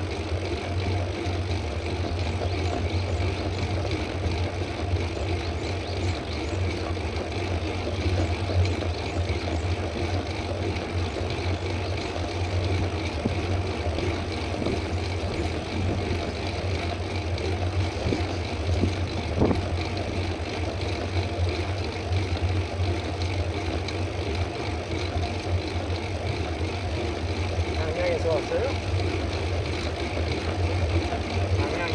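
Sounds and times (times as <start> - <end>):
bike tyre road noise: 0.0 - 31.9
wind buffeting microphone: 13.1 - 20.3.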